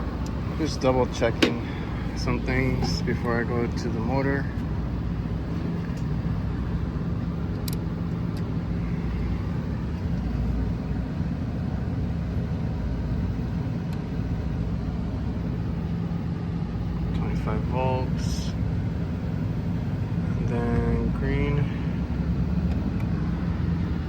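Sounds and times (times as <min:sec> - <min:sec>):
air conditioner humming: 0:00.0 - 0:24.0.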